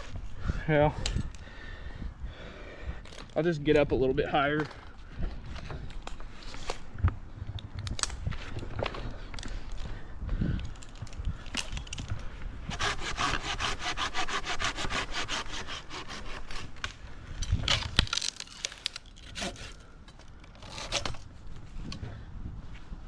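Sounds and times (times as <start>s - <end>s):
hand saw cutting branch: 12.7s - 21.3s.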